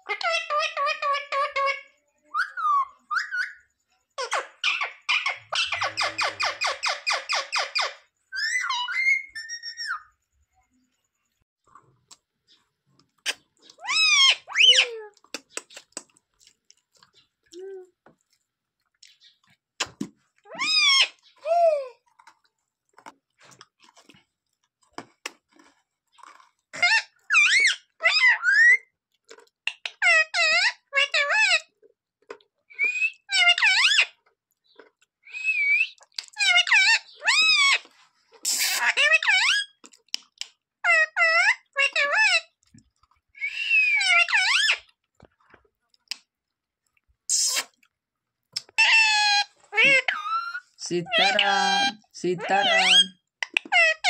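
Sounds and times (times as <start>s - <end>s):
parrot calling: 4.2s - 10.1s, 13.3s - 15.0s, 20.5s - 21.8s, 35.2s - 37.8s, 38.4s - 39.8s, 43.4s - 44.9s, 48.7s - 54.0s
soft clicks and crunching: 11.3s - 13.8s, 15.1s - 20.5s, 22.0s - 26.8s, 29.1s - 29.6s, 31.8s - 32.6s, 34.2s - 35.2s, 39.8s - 40.7s, 42.6s - 43.3s, 44.9s - 47.2s
parrot harsh repeated calls: 48.8s - 53.2s.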